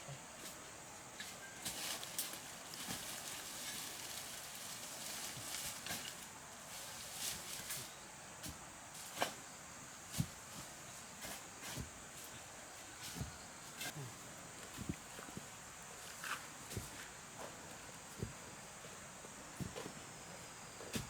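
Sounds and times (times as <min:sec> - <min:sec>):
bamboo and brush rustling: 0:00.3 - 0:21.0.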